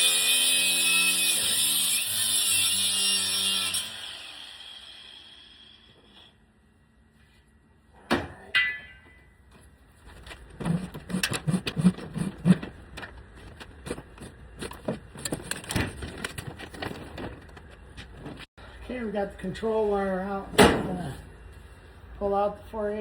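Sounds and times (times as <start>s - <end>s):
sharp metallic clanks: 8.1s - 9.4s
wire scraping through conduit: 10.0s - 18.5s.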